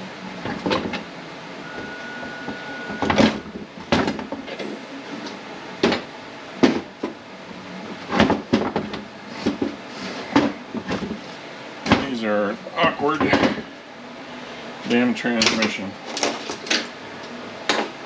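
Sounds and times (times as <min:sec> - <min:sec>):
thin steady whistle: 0:01.6 - 0:03.5.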